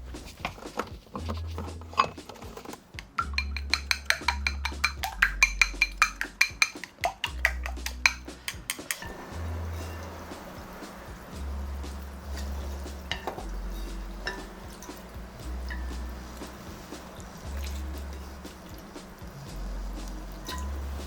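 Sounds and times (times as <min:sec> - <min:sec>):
background music with bass: 0:00.0 - 0:21.0
soft hissing noise: 0:00.0 - 0:21.0
utensils clinking against a dish: 0:01.6 - 0:10.3, 0:12.4 - 0:16.1, 0:20.4 - 0:21.0.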